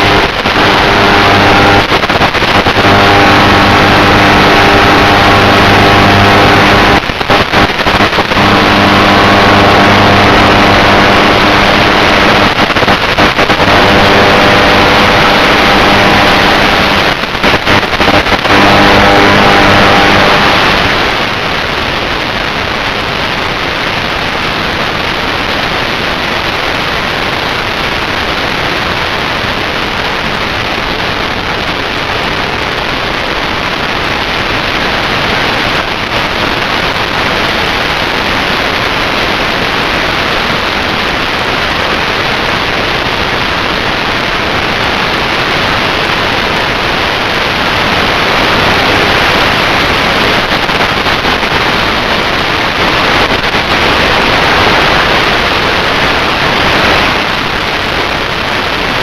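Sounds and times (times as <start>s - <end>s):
electric motor buzzing: 0.0s - 1.9s, 2.5s - 7.6s, 8.3s - 12.6s, 18.0s - 20.6s.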